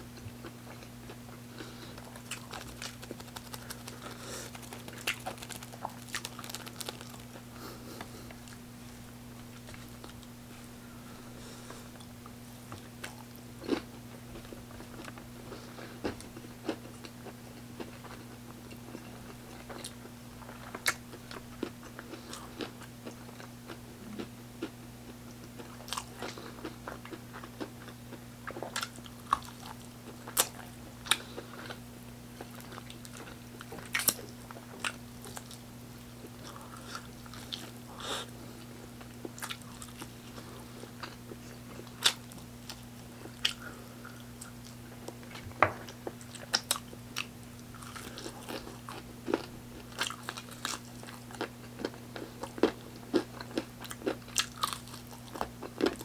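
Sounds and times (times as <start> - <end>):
person chewing crispy chicken: 0.4 - 8.6, 13.0 - 56.0
wet mouth clicks: 2.0 - 7.3.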